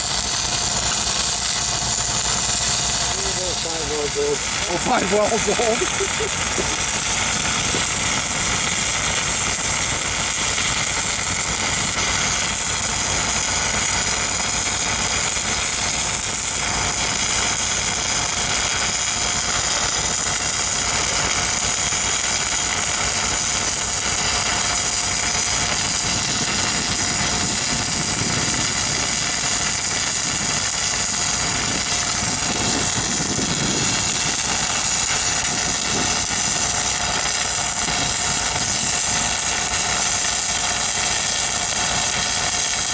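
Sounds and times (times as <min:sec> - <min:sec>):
welding machine engine running: 0:00.0 - 0:42.9
even hiss: 0:02.9 - 0:08.2.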